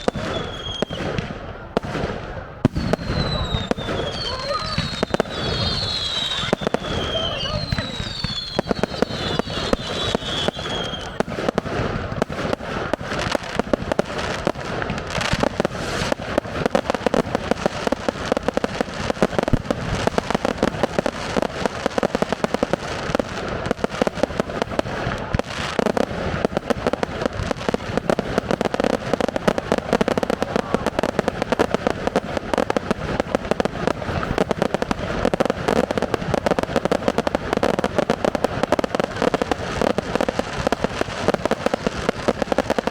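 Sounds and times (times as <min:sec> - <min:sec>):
falling firework whistle: 0:00.0 - 0:11.3
fireworks bangs and crackling: 0:00.0 - 0:42.9.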